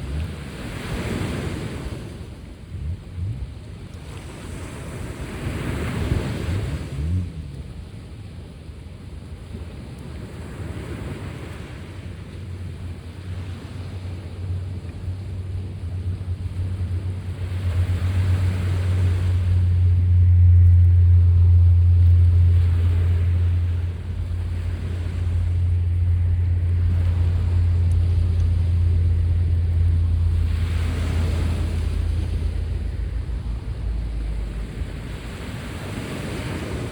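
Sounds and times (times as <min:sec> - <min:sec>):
sea waves washing: 0:00.0 - 0:36.9
loud low rumble: 0:12.9 - 0:36.9.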